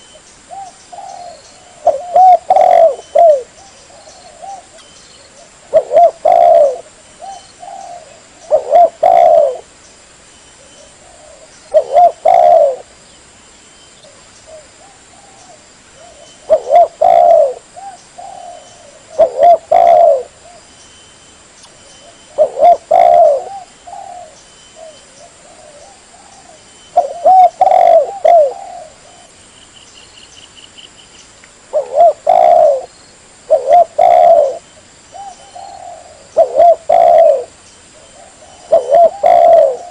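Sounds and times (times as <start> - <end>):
dove cooing: 0.0 - 9.7, 10.6 - 12.9, 14.4 - 20.6, 22.0 - 29.4, 31.7 - 32.9, 33.5 - 39.9.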